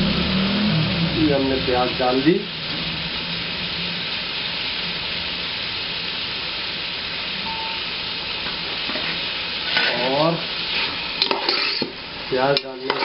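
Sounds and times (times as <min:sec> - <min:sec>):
meat and onions sizzling in oil: 0:00.0 - 0:13.0.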